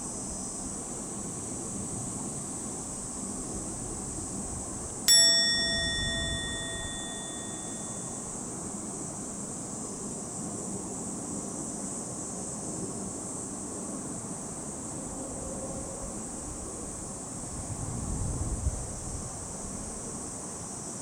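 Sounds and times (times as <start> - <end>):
background hum and hiss: 4.1 - 8.4
bell-like ding: 5.1 - 8.2.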